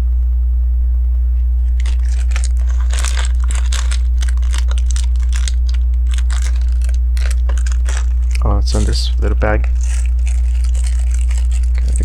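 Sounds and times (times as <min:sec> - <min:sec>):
low electrical hum: 0:00.0 - 0:12.0
plastic pieces rattling: 0:01.7 - 0:12.0.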